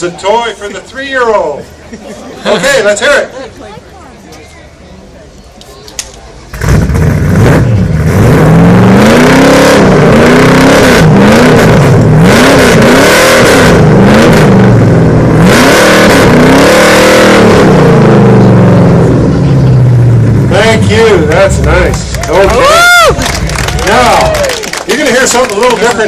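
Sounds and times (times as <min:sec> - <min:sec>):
car engine revving: 0:06.5 - 0:24.4.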